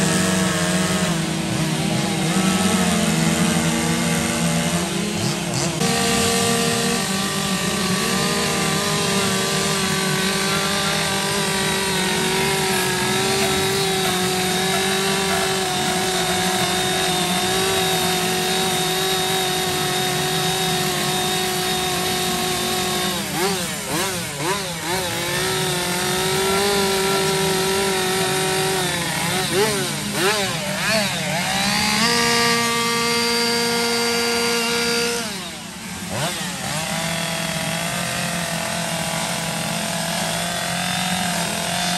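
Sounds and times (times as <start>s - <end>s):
chainsaws revving: 0.0s - 41.9s.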